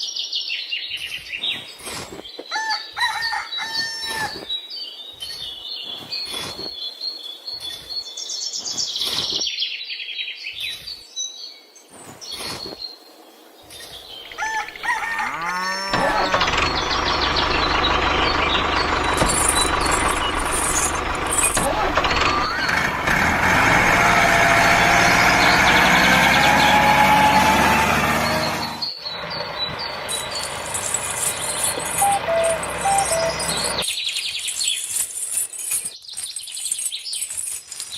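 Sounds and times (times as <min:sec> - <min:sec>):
birds chirping: 0:00.0 - 0:37.9
engine running loudly: 0:15.9 - 0:33.8.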